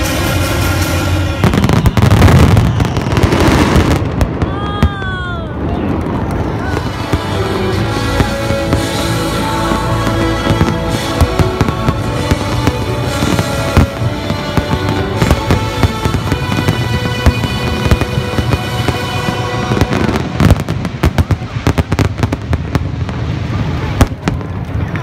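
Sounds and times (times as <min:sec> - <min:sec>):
music: 0:00.0 - 0:03.9, 0:06.6 - 0:22.3
fireworks bangs and crackling: 0:00.0 - 0:25.0
fireworks bursting: 0:00.0 - 0:25.0.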